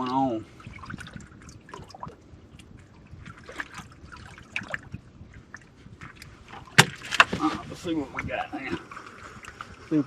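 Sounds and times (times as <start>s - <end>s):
water dripping and trickling: 0.0s - 7.1s.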